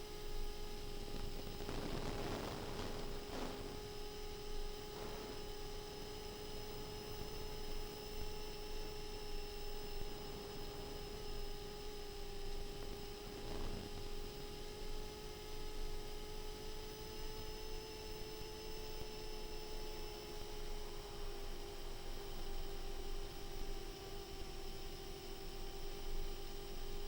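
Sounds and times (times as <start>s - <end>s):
electrical hum: 0.0s - 19.8s.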